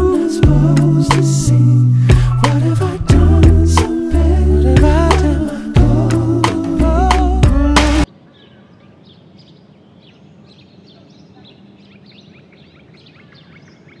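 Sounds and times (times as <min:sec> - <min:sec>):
song: 0:00.0 - 0:08.1
birds chirping: 0:08.1 - 0:14.0.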